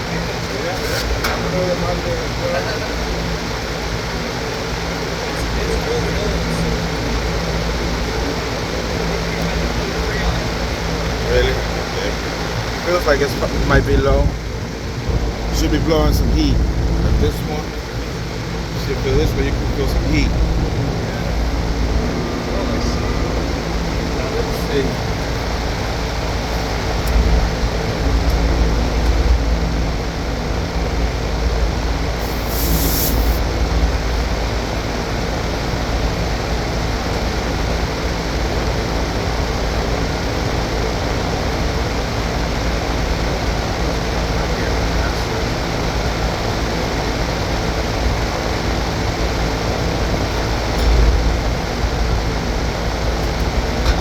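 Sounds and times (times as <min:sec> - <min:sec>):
air conditioner fan running: 0:00.0 - 0:54.0
motor hum: 0:01.2 - 0:54.0
brief hiss: 0:32.2 - 0:33.4.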